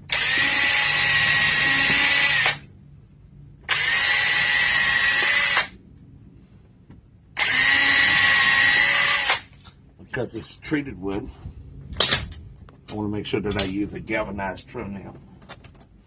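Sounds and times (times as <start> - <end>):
electric drill whining: 0.0 - 2.6, 3.7 - 5.8, 7.4 - 9.5.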